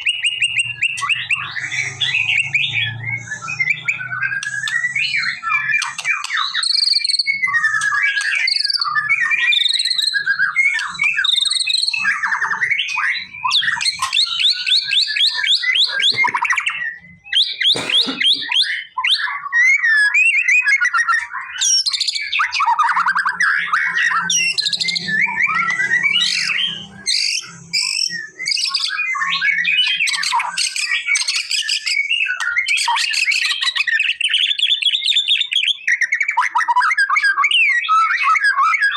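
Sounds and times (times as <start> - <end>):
bird singing whistled phrases: 0.0 - 17.7, 18.5 - 38.9.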